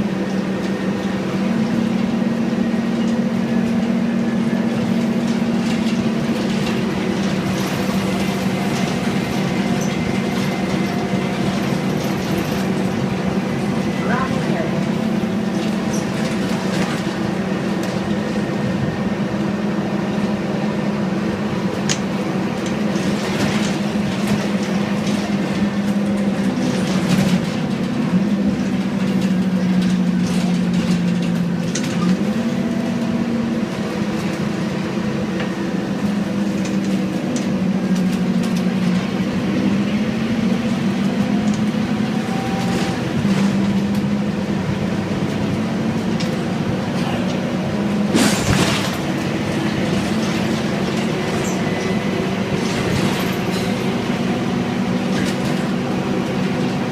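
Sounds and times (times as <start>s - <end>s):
bus diesel engine changing gear: 0.0s - 56.9s.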